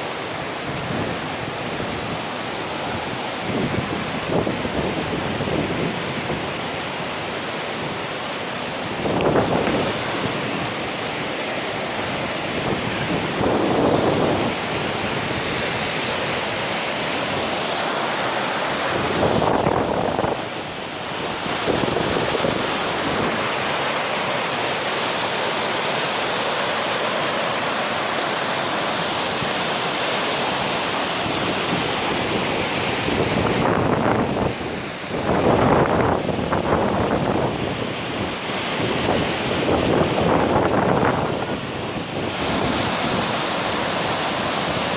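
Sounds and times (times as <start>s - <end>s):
waterfall rushing: 0.0s - 44.9s
wind buffeting microphone: 8.9s - 10.8s, 12.1s - 16.6s, 31.3s - 43.4s.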